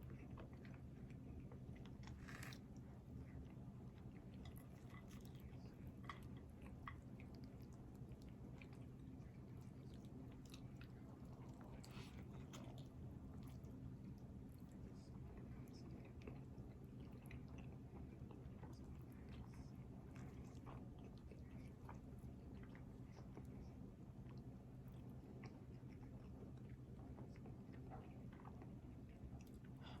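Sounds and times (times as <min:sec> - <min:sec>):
steady low hum: 0:00.0 - 0:30.0
person chewing and biting food: 0:01.8 - 0:02.6.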